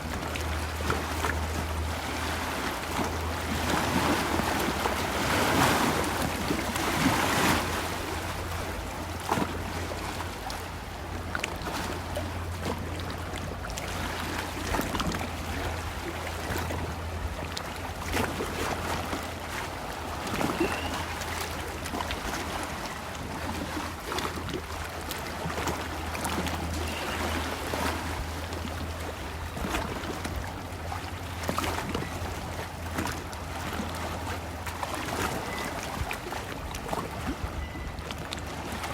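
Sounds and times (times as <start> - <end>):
lake water lapping and splashing: 0.0 - 38.9.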